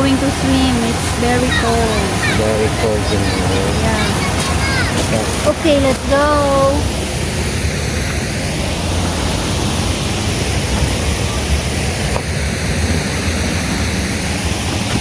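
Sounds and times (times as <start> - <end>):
mountain river and waterfall roaring: 0.0 - 15.0.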